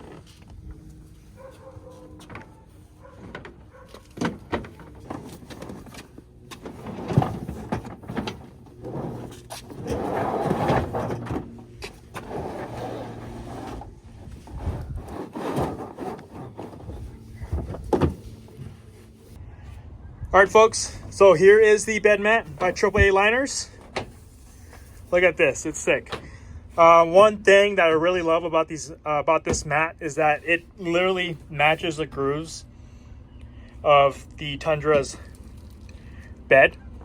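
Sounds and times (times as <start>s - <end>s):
rubbing or scraping: 0.0s - 19.4s.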